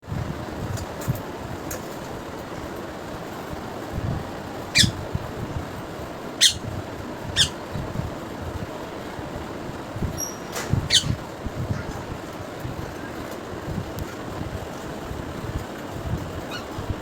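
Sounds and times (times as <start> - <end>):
bird squawking: 4.8 - 5.0, 6.4 - 6.7, 7.4 - 7.6, 10.2 - 11.3.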